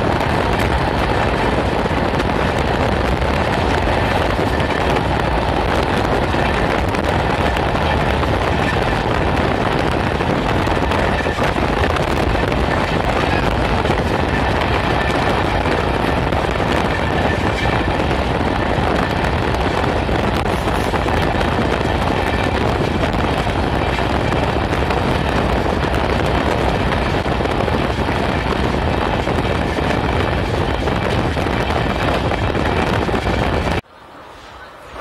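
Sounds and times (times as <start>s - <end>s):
wind on microphone: 0.0s - 33.8s
moving train running noise: 0.0s - 35.0s.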